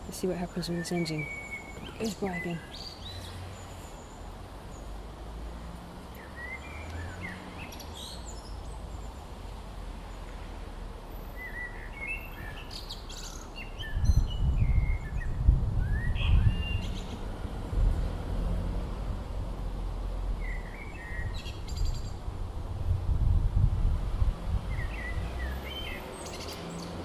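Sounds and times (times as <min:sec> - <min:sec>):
birds chirping: 0:00.0 - 0:05.0, 0:11.3 - 0:17.5
outdoor background noise: 0:00.0 - 0:27.0.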